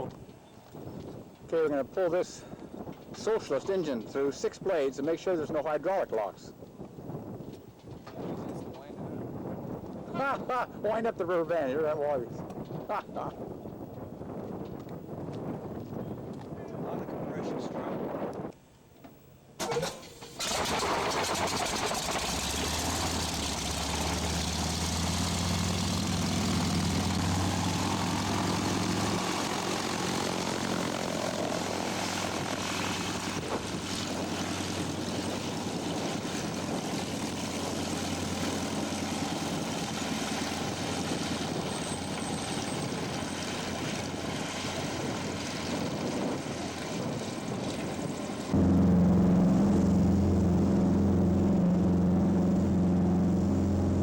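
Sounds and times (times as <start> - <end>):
propeller rushing: 19.6 - 54.0
radial aircraft engine running: 19.6 - 54.0.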